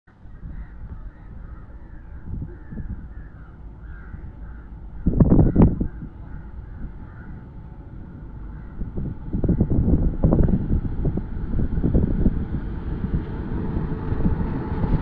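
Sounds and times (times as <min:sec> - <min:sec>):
loud low rumble: 0:00.1 - 0:15.0
low outdoor rumble: 0:00.1 - 0:15.0
crows cawing: 0:00.3 - 0:07.5, 0:08.1 - 0:08.8.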